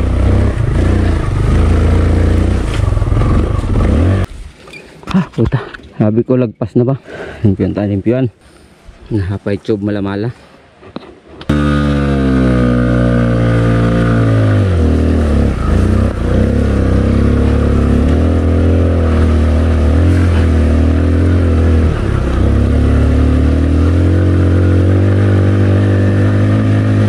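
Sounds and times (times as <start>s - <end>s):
motorcycle engine running: 0.0s - 4.3s, 11.5s - 27.0s.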